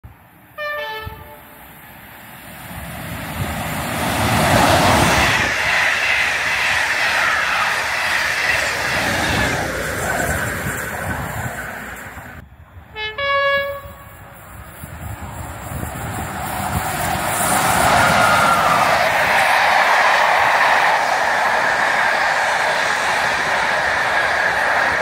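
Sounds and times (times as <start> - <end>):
train wheels and rail noise: 0.0 - 25.0
two-tone train horn: 0.6 - 1.5, 12.9 - 14.2.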